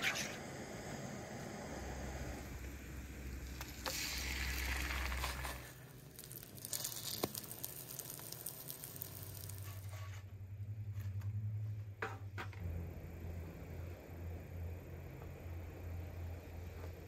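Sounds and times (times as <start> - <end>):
food sizzling in a skillet: 3.5 - 10.1.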